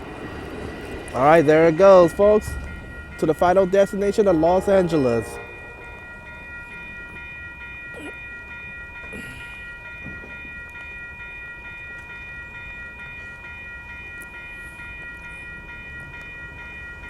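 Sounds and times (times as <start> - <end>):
passenger train rumbling: 0.0 - 17.0
high-pitched tones ringing: 1.8 - 8.5.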